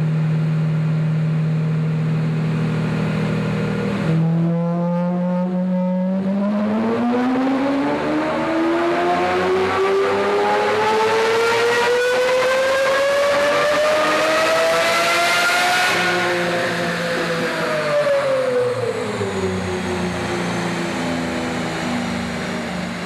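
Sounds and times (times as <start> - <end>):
car engine revving under load: 2.3 - 23.0.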